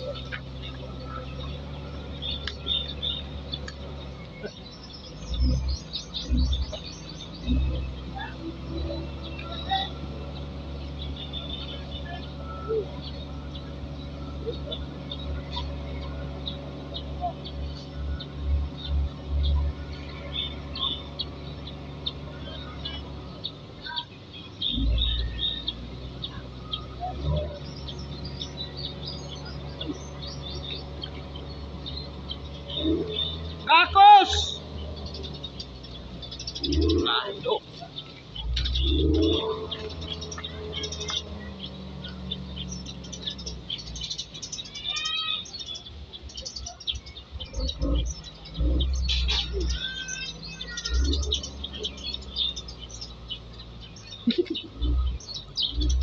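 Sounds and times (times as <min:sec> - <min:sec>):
birds chirping: 0:00.0 - 0:56.0
small bird chirping: 0:34.5 - 0:56.0.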